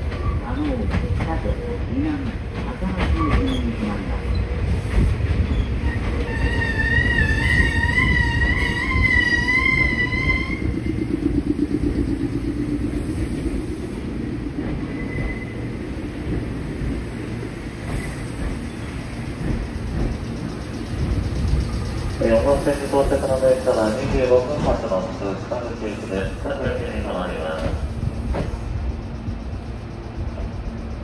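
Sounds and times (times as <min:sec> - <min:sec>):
electric train rumble: 0:00.0 - 0:31.0
high wavering brake squeal: 0:05.5 - 0:16.0.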